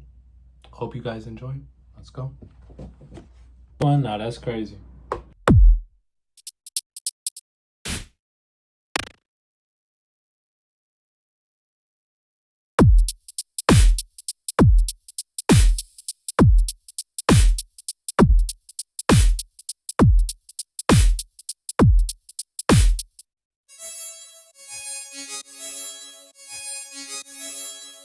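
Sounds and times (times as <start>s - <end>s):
beatboxed kick: 5.5s - 7.4s, 12.8s - 23.2s
hi-hat-like clicks: 6.4s - 7.4s, 12.9s - 23.2s
sustained chord tone: 23.7s - 28.0s.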